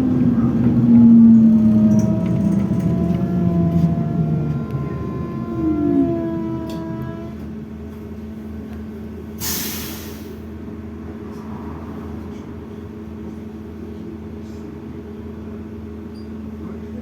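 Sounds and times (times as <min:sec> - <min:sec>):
trolleybus humming: 0:00.0 - 0:17.0
compressed air hiss: 0:09.4 - 0:10.4.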